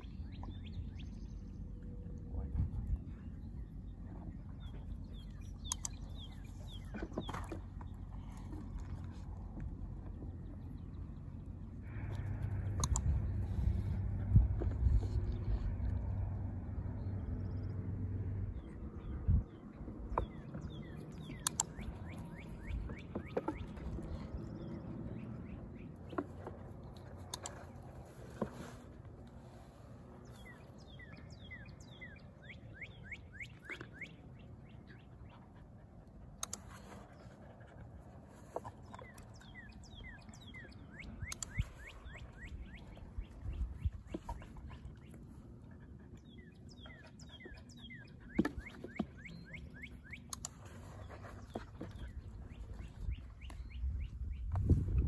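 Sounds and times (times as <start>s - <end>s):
low rumble: 0.0s - 6.9s, 7.6s - 22.9s
songbirds chirping: 0.0s - 55.0s.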